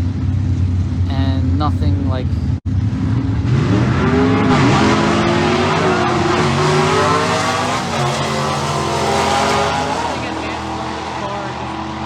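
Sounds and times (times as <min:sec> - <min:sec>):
drag cars accelerating at full throttle: 0:02.7 - 0:12.0.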